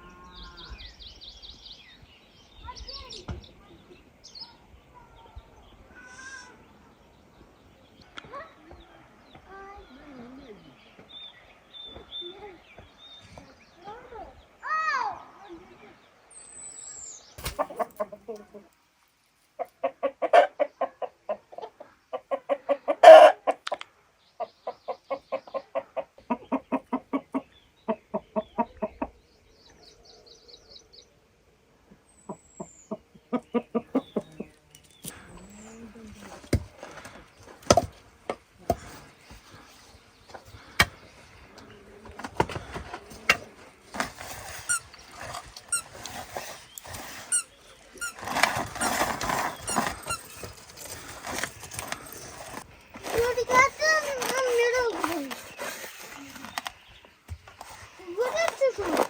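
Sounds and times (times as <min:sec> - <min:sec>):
chicken clucking: 0:17.5 - 0:18.7, 0:19.5 - 0:23.7, 0:24.4 - 0:29.2, 0:32.2 - 0:34.6
high bird trill: 0:44.4 - 0:56.9.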